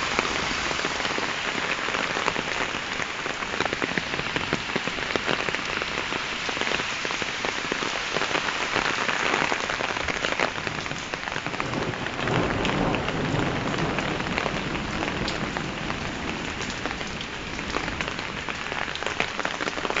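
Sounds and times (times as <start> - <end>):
heavy rain on hard surfaces: 0.0 - 20.0
thunder rumble: 10.7 - 18.5.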